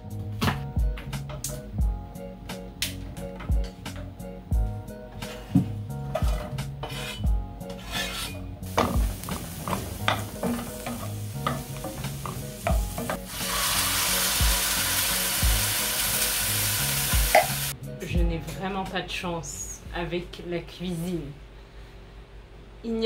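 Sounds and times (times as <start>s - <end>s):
wooden spoon scraping pan: 5.1s - 13.2s
onions sizzling in frying pan: 8.6s - 17.7s.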